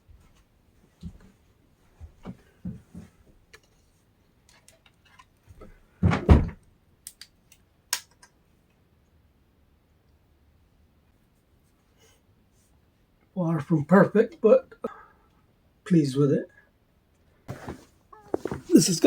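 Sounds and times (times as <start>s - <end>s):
heavy thump: 17.5s - 18.8s.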